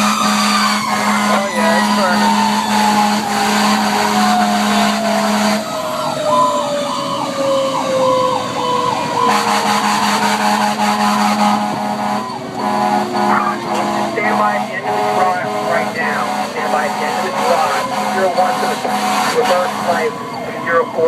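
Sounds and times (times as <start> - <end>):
mechanical siren winding down: 0.0 - 16.0
electronic siren sweeps: 0.0 - 21.0
steady low drone: 9.2 - 21.0.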